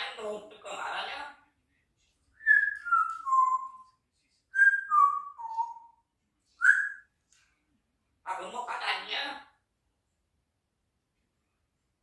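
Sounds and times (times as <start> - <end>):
parrot whistling: 4.6 - 6.0, 6.6 - 7.1.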